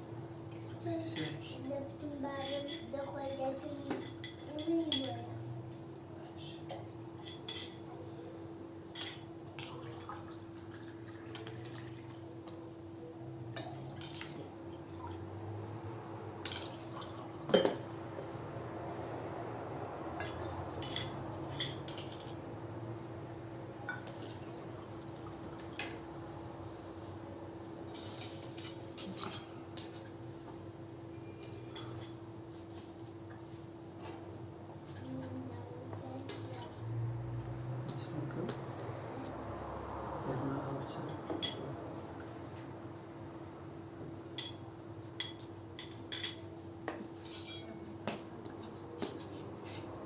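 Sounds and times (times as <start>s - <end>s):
dishes and cutlery clinking: 0.9s - 1.6s, 2.3s - 5.3s, 6.7s - 8.0s, 8.9s - 12.2s, 16.4s - 18.0s, 20.1s - 22.4s, 23.8s - 27.2s, 27.8s - 30.3s, 31.2s - 37.1s, 40.9s - 42.4s, 44.3s - 50.0s.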